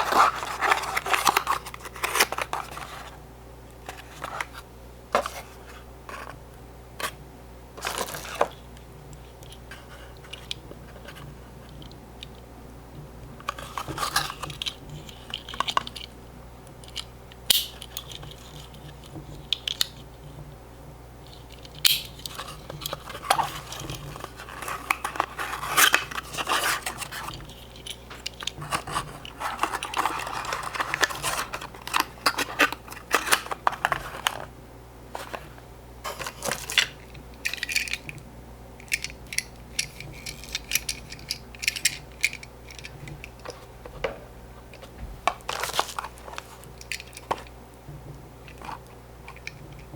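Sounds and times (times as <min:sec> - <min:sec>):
cardboard scraping and rustling: 0:00.0 - 0:03.2, 0:05.2 - 0:06.4, 0:07.8 - 0:08.6, 0:13.4 - 0:16.0, 0:22.3 - 0:34.5, 0:35.1 - 0:37.0, 0:44.8 - 0:47.4
faint steady hum: 0:00.0 - 0:49.9
toy cars clicking and tapping: 0:38.8 - 0:43.4.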